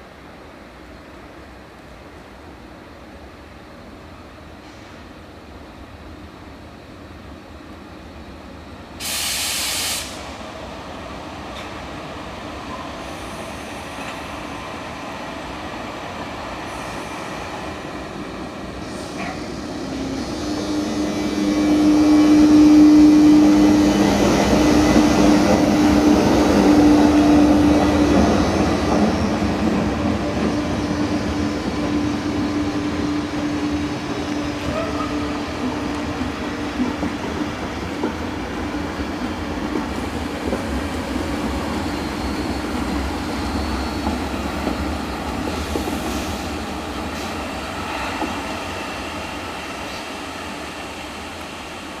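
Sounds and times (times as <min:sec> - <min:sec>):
train passing through station: 0:00.0 - 0:52.0
loud burst of hiss: 0:09.0 - 0:10.4.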